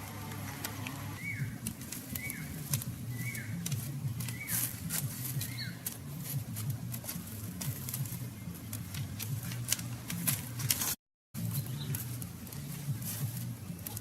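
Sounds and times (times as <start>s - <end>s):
bird calling: 0.0s - 6.3s.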